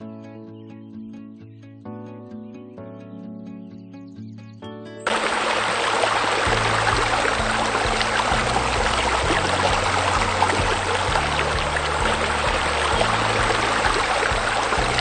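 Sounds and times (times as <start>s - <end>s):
soft music with low notes: 0.0s - 15.0s
flowing water rushing: 5.1s - 15.0s.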